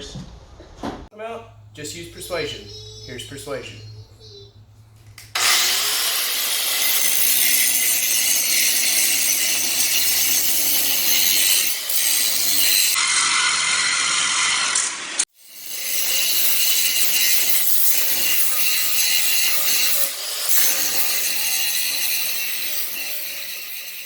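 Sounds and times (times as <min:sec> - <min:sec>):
angle grinder cutting steel: 0:05.2 - 0:24.0.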